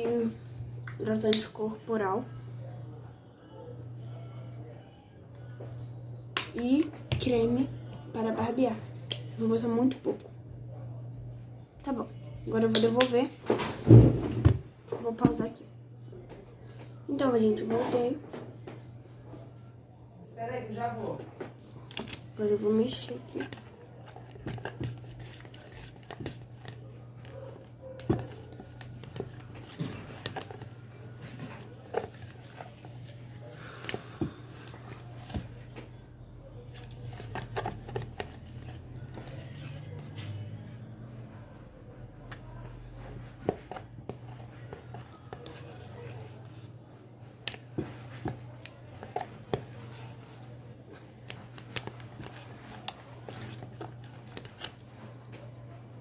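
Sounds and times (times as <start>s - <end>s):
low steady hum: 0.0s - 56.0s
slime being stirred: 21.0s - 40.6s, 42.1s - 56.0s
sticky mixing sounds: 21.0s - 56.0s.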